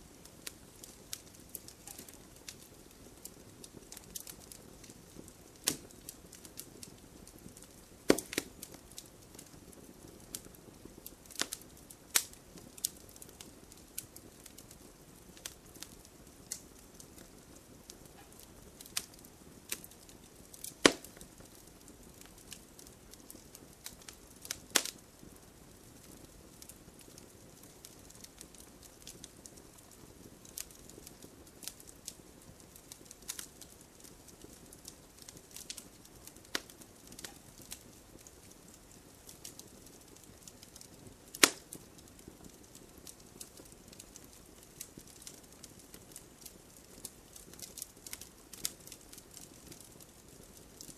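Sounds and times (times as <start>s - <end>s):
wood fire crackling: 0.0s - 50.9s
sharp pops and snaps: 5.6s - 9.5s, 10.3s - 14.6s, 18.2s - 21.6s, 23.3s - 25.0s, 32.8s - 37.8s, 40.6s - 49.9s.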